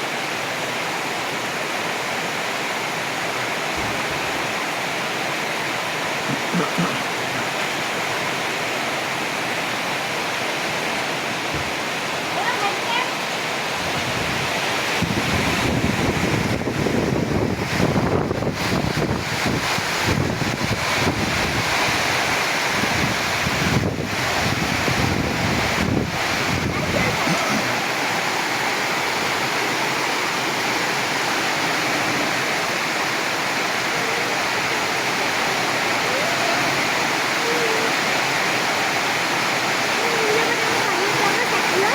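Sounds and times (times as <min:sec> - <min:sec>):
heavy rain pouring: 0:00.0 - 0:41.9
wind buffeting microphone: 0:13.8 - 0:28.6.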